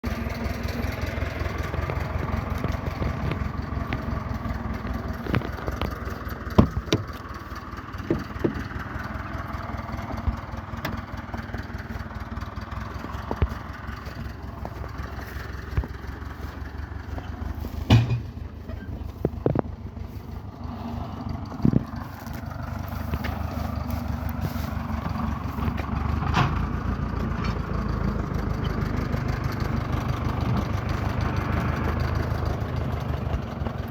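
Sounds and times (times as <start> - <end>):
car engine cranking: 0.0 - 33.9
starter clicks: 1.8 - 7.4.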